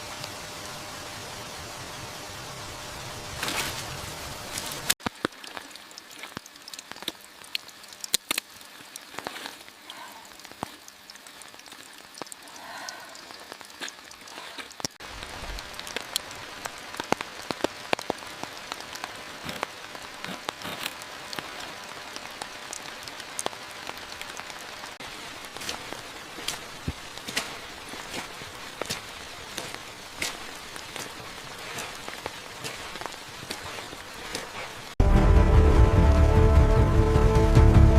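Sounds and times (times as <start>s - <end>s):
rain drops tapping on a surface: 3.2s - 35.0s.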